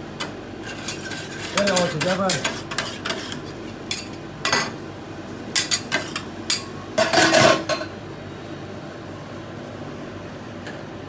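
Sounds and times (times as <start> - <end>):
metal spatulas scraping on pan: 0.6 - 4.2.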